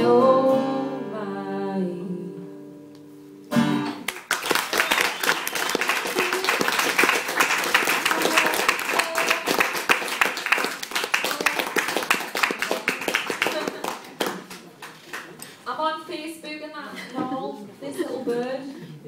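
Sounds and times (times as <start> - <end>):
voices among applause: 4.0 - 15.5
audience clapping: 4.0 - 15.6.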